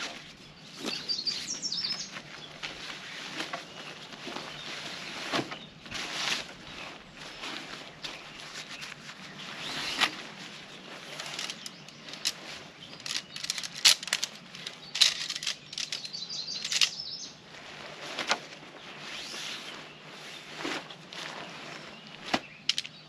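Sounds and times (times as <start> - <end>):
tent fabric rustling and flapping: 0.0 - 22.7
tent gear clicking and clattering: 0.0 - 23.0.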